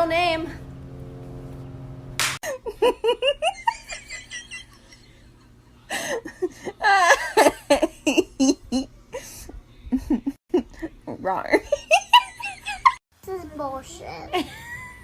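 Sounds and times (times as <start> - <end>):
person laughing: 2.4 - 5.2, 14.3 - 15.0.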